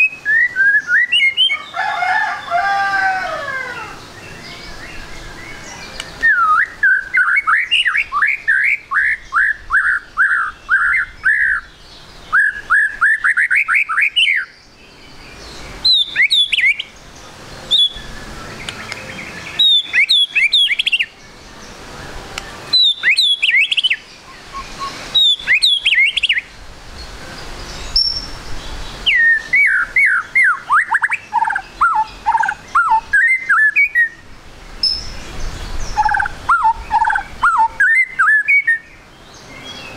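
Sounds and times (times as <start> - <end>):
bird calling sliding notes: 4.6 - 11.7, 15.8 - 17.0, 17.6 - 21.2, 21.8 - 26.5, 29.1 - 35.2, 35.9 - 38.9
high sharp down-slurred bird notes: 22.0 - 26.5.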